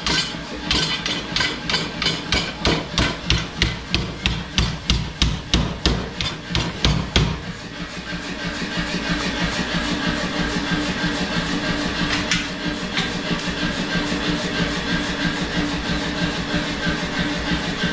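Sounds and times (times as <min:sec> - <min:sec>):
power hammer striking steel: 0:00.0 - 0:07.6.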